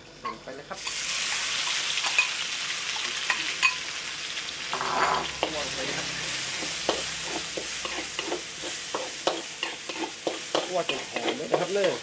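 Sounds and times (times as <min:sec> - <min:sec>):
paste sizzling in hot oil: 0:00.7 - 0:12.0.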